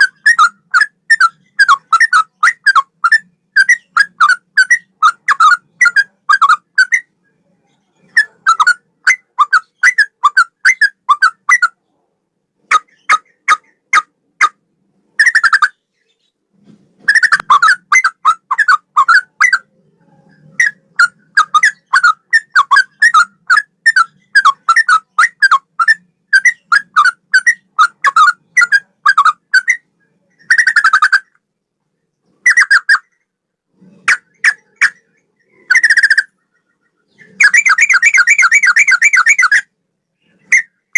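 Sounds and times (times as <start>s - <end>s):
bulbul singing whistled notes: 34.2s - 40.9s.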